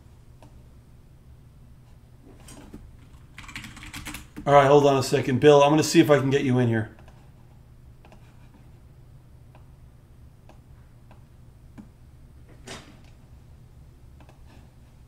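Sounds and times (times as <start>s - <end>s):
low steady hum: 0.0s - 15.0s
mouse and keyboard clicks: 14.2s - 14.4s.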